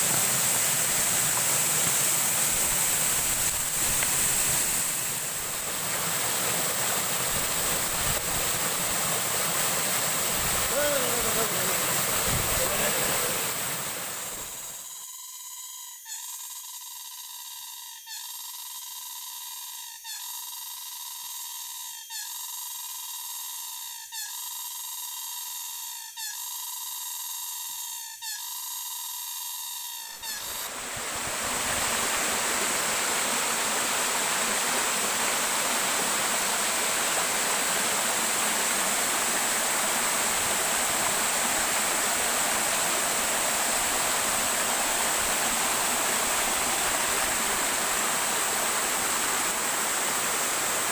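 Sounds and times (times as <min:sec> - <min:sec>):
waterfall roar: 0:00.0 - 0:14.5, 0:30.6 - 0:50.9.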